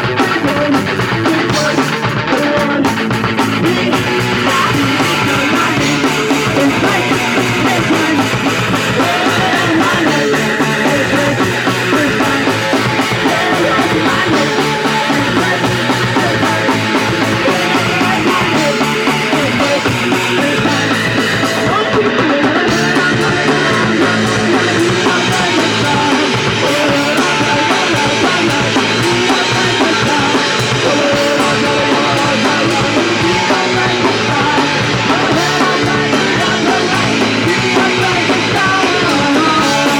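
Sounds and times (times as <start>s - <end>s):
punk rock with guitar and drums: 0.0s - 39.9s.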